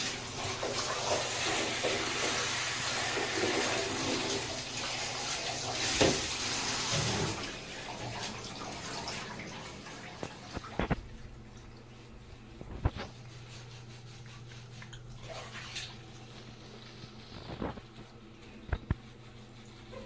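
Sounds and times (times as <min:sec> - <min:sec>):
shower water spraying: 0:00.0 - 0:11.0.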